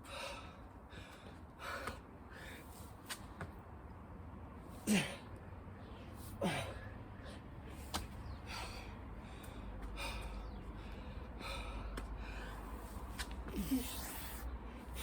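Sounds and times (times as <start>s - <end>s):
man grunting: 4.9s - 5.2s, 13.5s - 14.3s
man gasping breaths: 6.3s - 7.5s, 8.4s - 15.0s.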